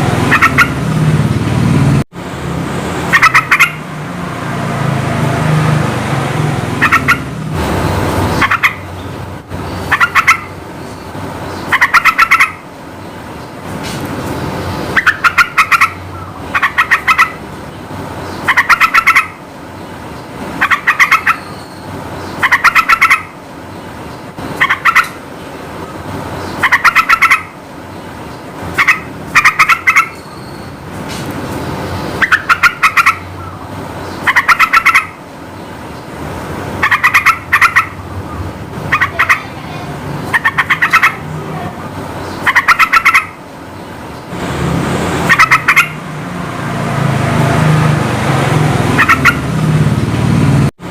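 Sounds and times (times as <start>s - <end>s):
bird chattering song: 0.3s - 0.8s, 3.1s - 3.8s, 6.8s - 44.4s, 45.2s - 46.0s, 49.0s - 49.5s.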